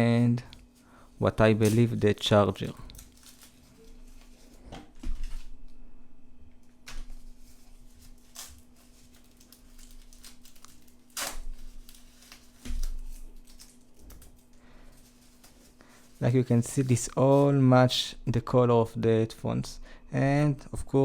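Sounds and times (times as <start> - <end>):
faint steady hum: 0.0 - 21.0
packaging and cables handled: 2.6 - 5.5, 6.8 - 17.5.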